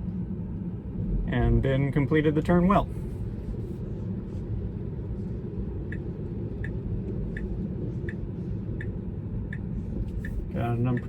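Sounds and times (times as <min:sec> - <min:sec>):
road rumble inside car: 0:00.0 - 0:11.0
turn signal ticking: 0:05.8 - 0:11.0.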